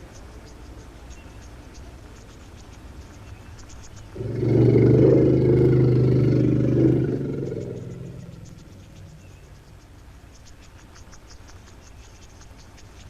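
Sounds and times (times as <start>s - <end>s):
faint insects ticking: 0.0s - 13.0s
elephant bellowing: 4.2s - 9.2s.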